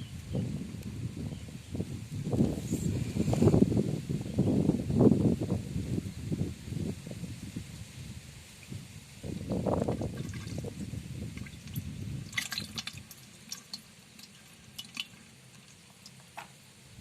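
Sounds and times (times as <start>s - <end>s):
water splashing: 9.8s - 16.4s
water dripping: 9.8s - 16.6s.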